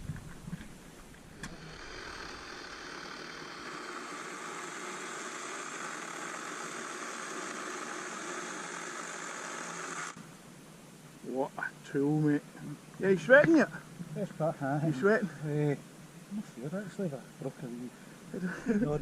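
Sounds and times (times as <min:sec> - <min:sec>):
chainsaw running: 0:01.3 - 0:10.2.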